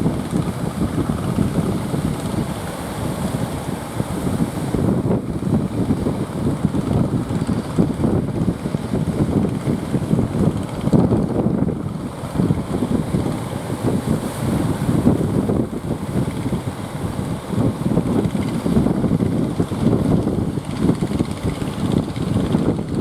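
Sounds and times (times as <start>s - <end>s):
wind gusting across microphone: 0.0s - 23.0s.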